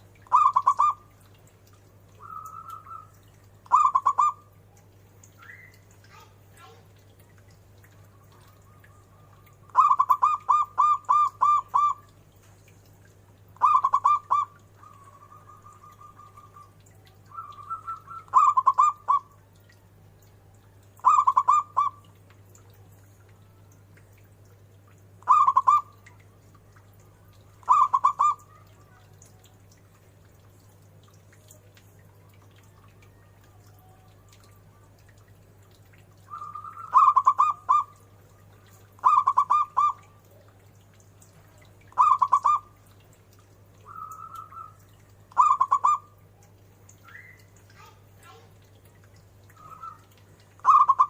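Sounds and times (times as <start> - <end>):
dove cooing: 0.3 - 1.1, 2.2 - 4.4, 8.3 - 12.1, 13.6 - 19.3, 21.0 - 22.0, 25.2 - 26.0, 27.6 - 29.1, 36.3 - 38.0, 38.9 - 40.1, 42.0 - 42.6, 45.4 - 46.1, 49.6 - 51.0.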